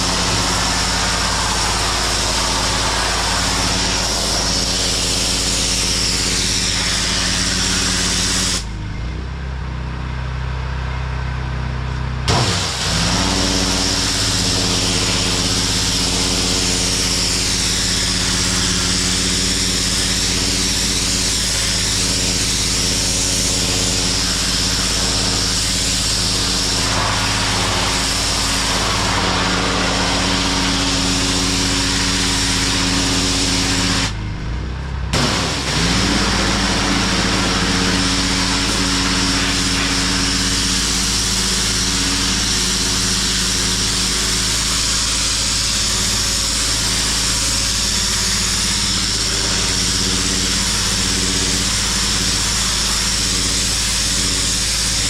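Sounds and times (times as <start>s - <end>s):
high-pressure spray on concrete: 0.0s - 8.8s, 12.3s - 34.2s, 35.2s - 55.0s
pressure washer engine running: 0.0s - 55.0s.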